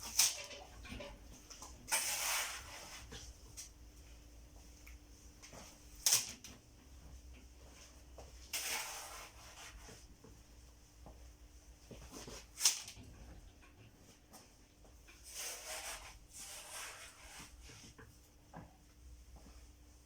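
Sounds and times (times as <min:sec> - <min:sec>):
concrete mix scraping: 0:01.8 - 0:03.2.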